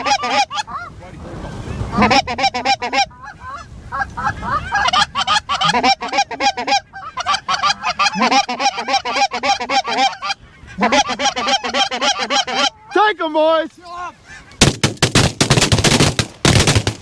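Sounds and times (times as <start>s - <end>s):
goose honking and clucking: 0.0s - 1.0s, 1.7s - 13.2s, 14.1s - 14.6s.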